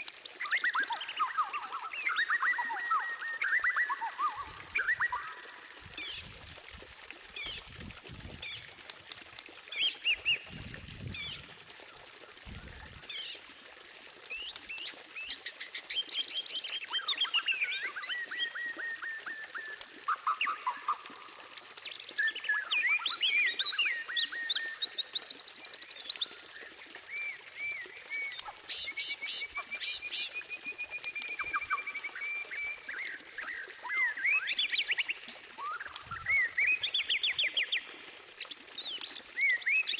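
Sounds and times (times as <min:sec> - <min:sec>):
bird singing whistled phrases: 0:00.3 - 0:06.2, 0:16.0 - 0:21.0, 0:21.6 - 0:37.9, 0:38.8 - 0:39.9.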